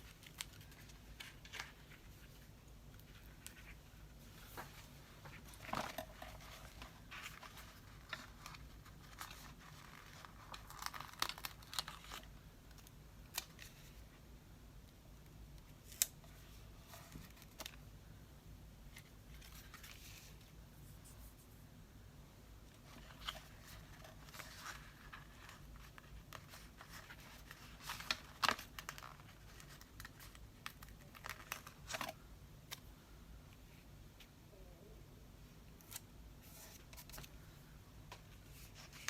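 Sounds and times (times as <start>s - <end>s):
paper rustling and crinkling: 0.0s - 14.0s, 18.9s - 21.4s, 22.7s - 32.2s, 35.9s - 37.4s, 38.1s - 39.0s.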